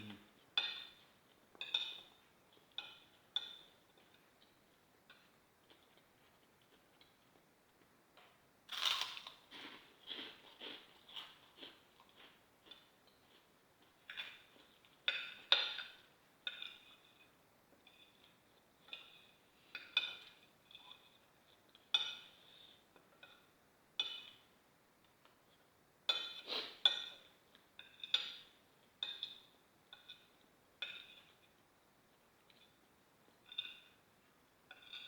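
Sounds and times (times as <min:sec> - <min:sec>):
cutlery clinking on a plate: 0:00.5 - 0:06.0, 0:14.0 - 0:24.5, 0:26.1 - 0:31.5, 0:32.4 - 0:35.0.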